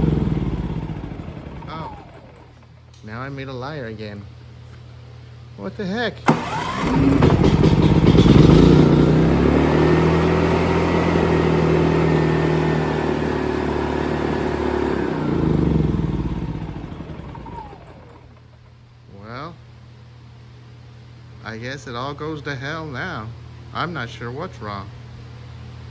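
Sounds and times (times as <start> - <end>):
generator engine running and stalling: 0.0 - 3.0, 6.2 - 19.0.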